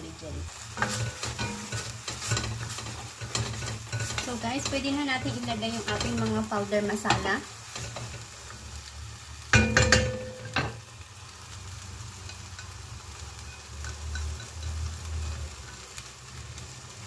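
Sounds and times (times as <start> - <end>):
paste frying in a pot: 0.0 - 17.0
utensil clinking against pot: 0.8 - 6.4, 9.5 - 10.8.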